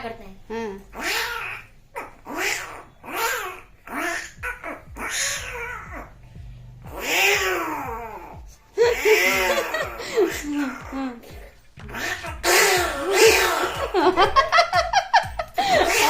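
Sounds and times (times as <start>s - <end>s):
person imitating cats yowling: 6.9s - 11.0s, 11.8s - 13.9s.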